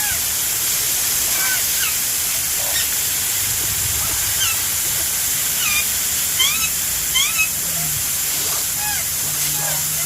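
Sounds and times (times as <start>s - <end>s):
garden hose spraying water: 0.0s - 10.0s
birds chirping: 3.9s - 4.7s.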